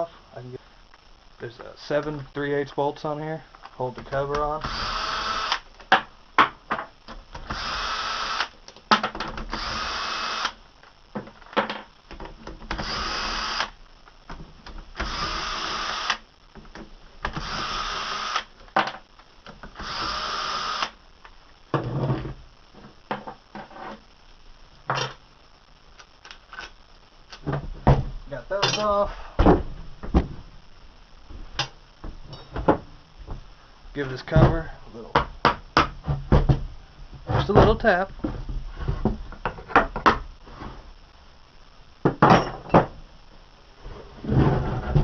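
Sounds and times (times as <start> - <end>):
power drill spinning out bolts: 4.6 - 5.6, 7.3 - 8.6, 9.2 - 10.6, 12.6 - 13.8, 14.9 - 16.2, 17.2 - 18.5, 19.7 - 21.0.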